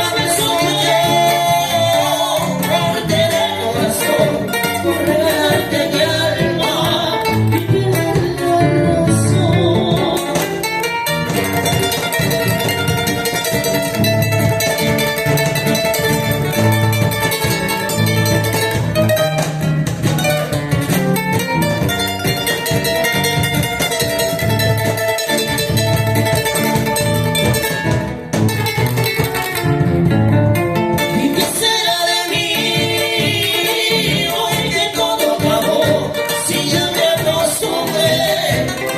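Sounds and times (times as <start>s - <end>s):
person singing: 0.0s - 10.7s, 31.0s - 38.9s
plucked guitar strings: 0.0s - 38.9s.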